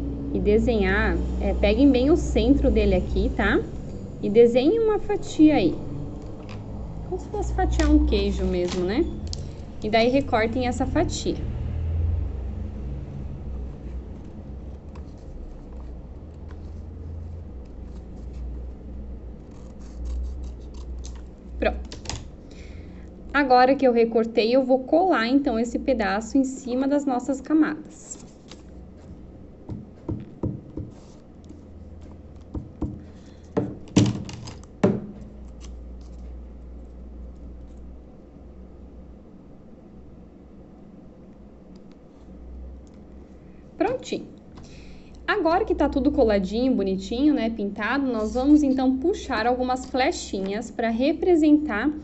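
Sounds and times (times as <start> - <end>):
low steady hum: 0.0 - 52.0
paper rustling: 13.9 - 22.3, 28.0 - 36.4
scissors snipping paper: 19.4 - 22.3, 33.8 - 36.3
knocks and thumps on table: 29.7 - 31.0, 32.5 - 35.2.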